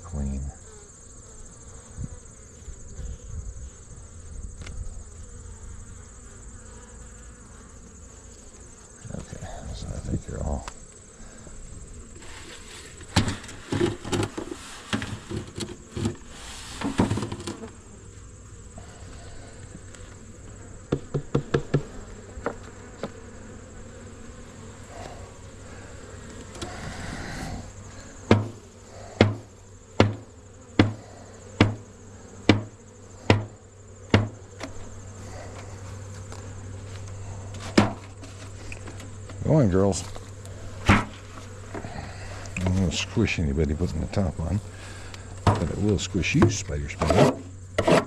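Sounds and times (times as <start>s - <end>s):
honey bees buzzing: 0.0s - 48.0s
wooden knocks of hive parts: 12.9s - 17.8s, 19.6s - 23.2s, 28.2s - 39.4s, 40.0s - 43.0s, 45.0s - 48.0s.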